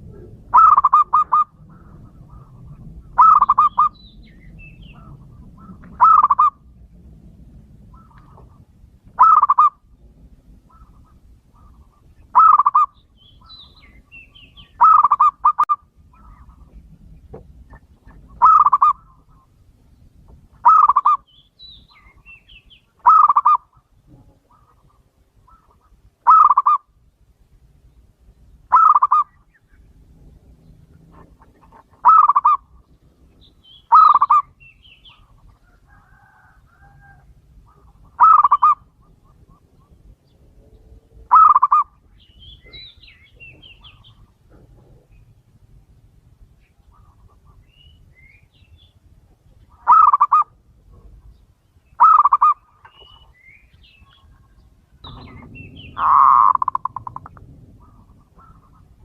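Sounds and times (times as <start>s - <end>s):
dove cooing: 0.0s - 6.8s, 7.9s - 9.8s, 10.5s - 17.0s, 17.7s - 19.5s, 20.6s - 21.3s, 23.0s - 26.9s, 28.7s - 29.4s, 30.6s - 33.0s, 33.9s - 42.0s, 49.7s - 51.2s, 52.0s - 53.2s, 54.0s - 59.0s
small birds chirping: 0.0s - 6.9s, 7.8s - 26.9s, 27.8s - 59.0s.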